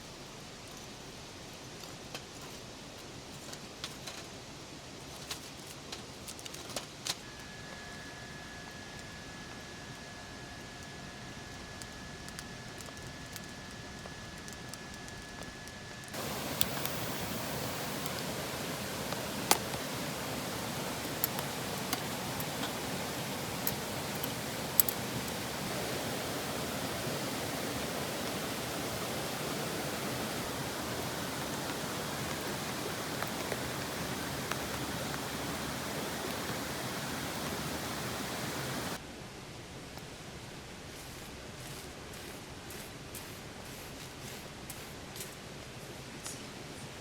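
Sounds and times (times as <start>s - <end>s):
steady rushing hiss: 0.0s - 39.0s, 40.4s - 47.0s
campfire crackling: 9.9s - 39.0s.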